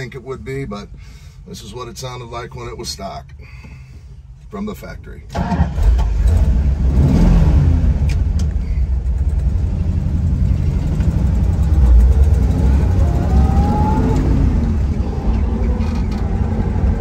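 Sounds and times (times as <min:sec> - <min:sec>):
car engine idling: 0:08.0 - 0:17.0.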